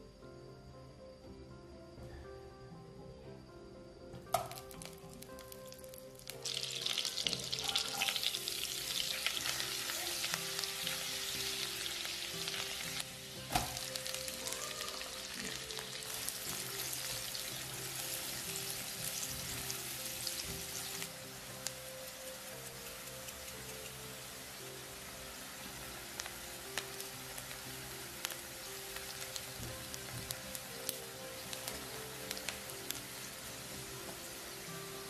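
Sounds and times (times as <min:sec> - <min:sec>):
knock on wok: 0:04.2 - 0:04.7
food sizzling in oil: 0:04.4 - 0:35.0.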